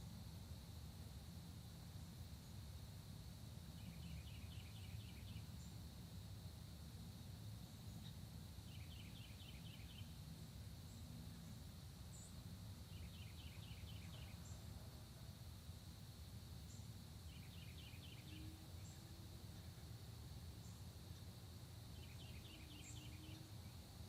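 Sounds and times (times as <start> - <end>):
faint high insect buzz: 0.0 - 24.0
songbird singing: 3.6 - 5.9, 7.6 - 15.3, 16.6 - 24.0.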